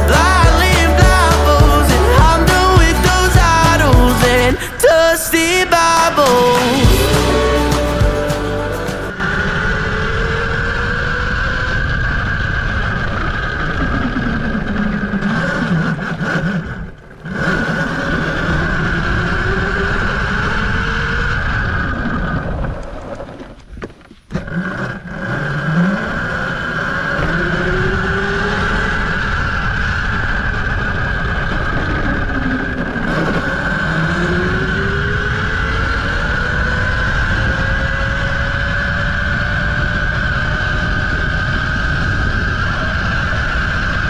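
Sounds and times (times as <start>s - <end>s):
electric dirt bike motor whine: 24.7s - 44.0s.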